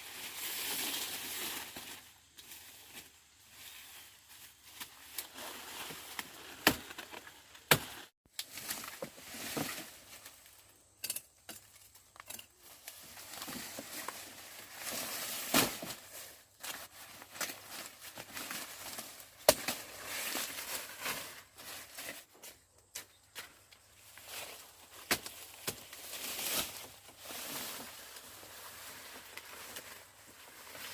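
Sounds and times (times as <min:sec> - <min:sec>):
cane leaves rustling and crackling: 0:00.0 - 0:22.5, 0:23.2 - 0:30.9
sugarcane chops: 0:06.5 - 0:09.1, 0:19.4 - 0:20.0, 0:24.9 - 0:26.0.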